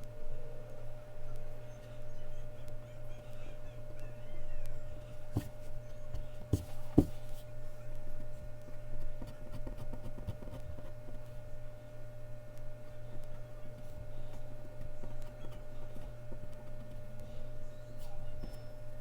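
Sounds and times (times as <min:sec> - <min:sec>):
pencil tapping on paper: 0:05.4 - 0:07.3
pencil scratching on paper: 0:05.4 - 0:07.4, 0:09.2 - 0:10.9.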